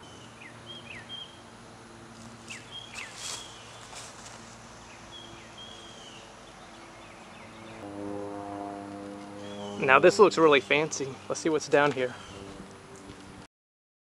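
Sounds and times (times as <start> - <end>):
birds chirping and whistling: 0.0 - 1.4, 2.5 - 3.9, 4.9 - 7.9, 9.3 - 12.6.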